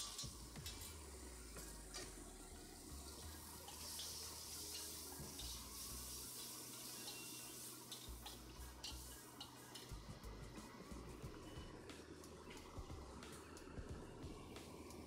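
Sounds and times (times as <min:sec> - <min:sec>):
paste sizzling in hot oil: 0:00.0 - 0:01.7, 0:02.8 - 0:11.0.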